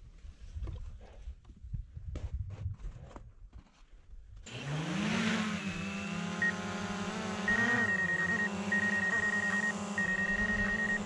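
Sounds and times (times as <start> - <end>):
snowbike engine running: 4.5 - 11.0
high beeping tone: 7.5 - 11.0.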